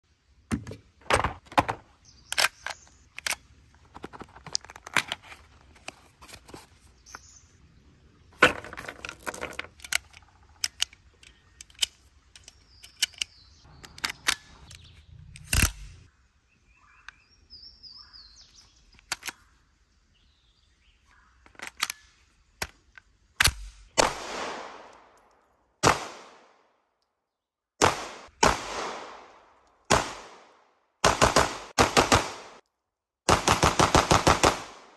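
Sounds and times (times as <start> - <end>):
faint bird chirps: 12.4 - 22.2
submachine gun firing: 31.0 - 32.6, 33.3 - 34.9.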